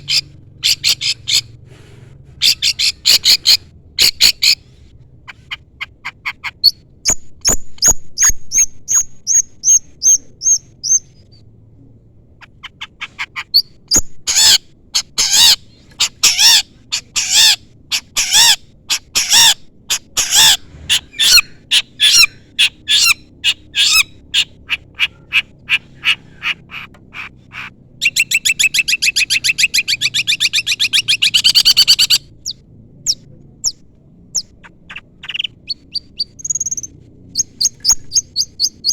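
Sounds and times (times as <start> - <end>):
fast bird trill: 0.0 - 1.5, 2.4 - 4.6, 5.3 - 11.2, 12.4 - 38.9
bird chirps and whistles: 28.0 - 33.2.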